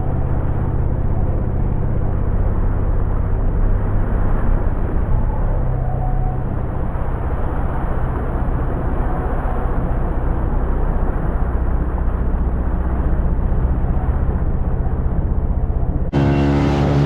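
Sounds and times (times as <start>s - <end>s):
outboard motor running: 9.0s - 17.0s
rushing water noise: 16.1s - 17.0s.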